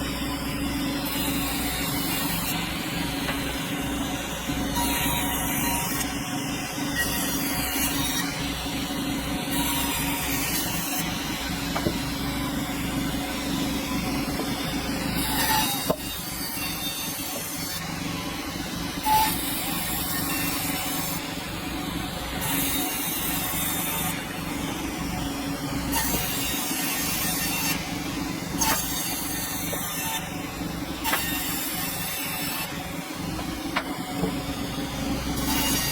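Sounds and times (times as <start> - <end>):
sawmill machinery humming: 0.0 - 35.9
sharp knocks: 11.8 - 12.0.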